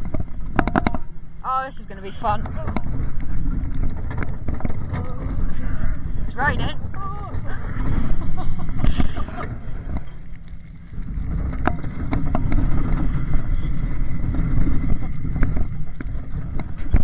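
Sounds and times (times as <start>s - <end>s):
clicks and knocks: 0.0s - 1.2s
roller coaster rattling on track: 0.0s - 17.0s
wind buffeting microphone: 0.0s - 17.0s.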